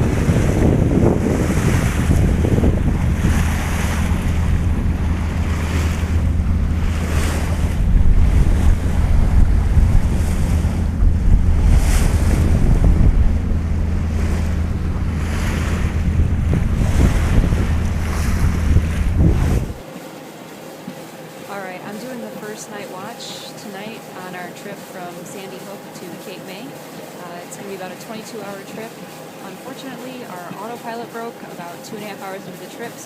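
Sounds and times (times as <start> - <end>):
wind buffeting microphone: 0.0 - 19.8
steady low hum: 0.0 - 33.0
water splashing along hull: 0.0 - 33.0.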